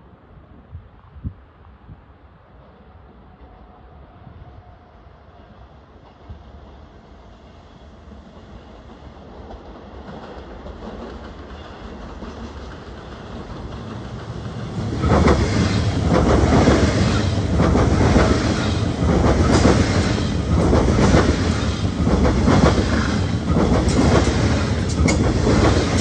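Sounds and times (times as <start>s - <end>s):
train wheels clattering over rail joints: 9.6s - 26.0s.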